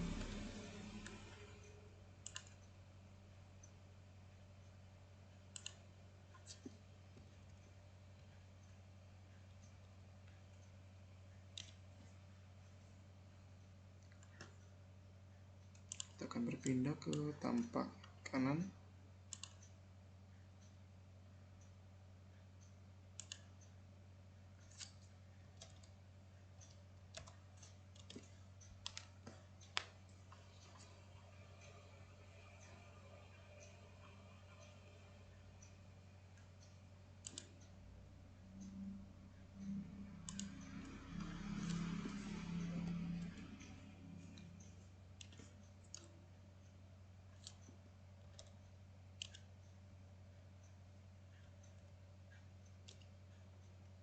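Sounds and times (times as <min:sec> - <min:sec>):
computer mouse clicks: 0:00.0 - 0:01.6, 0:02.2 - 0:02.8, 0:05.5 - 0:10.8, 0:11.4 - 0:12.1, 0:13.6 - 0:14.8, 0:15.6 - 0:18.2, 0:19.3 - 0:19.8, 0:22.6 - 0:23.8, 0:24.6 - 0:26.0, 0:26.6 - 0:37.8, 0:38.5 - 0:49.8, 0:50.6 - 0:53.8
faint low hum: 0:00.0 - 0:54.0
mouse and keyboard clicks: 0:02.2 - 0:02.7, 0:05.5 - 0:06.8, 0:15.7 - 0:17.3, 0:19.3 - 0:19.7, 0:23.2 - 0:23.6, 0:24.6 - 0:26.0, 0:26.6 - 0:30.9, 0:36.6 - 0:37.7, 0:39.6 - 0:46.1, 0:47.4 - 0:48.6, 0:49.2 - 0:49.5, 0:52.7 - 0:53.2.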